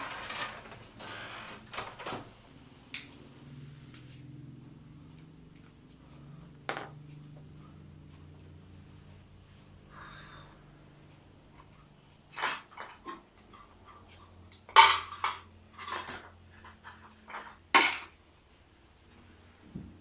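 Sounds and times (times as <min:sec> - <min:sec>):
faint steady hum: 0:00.0 - 0:20.0
objects knocking and clattering: 0:06.6 - 0:07.0, 0:12.3 - 0:18.2.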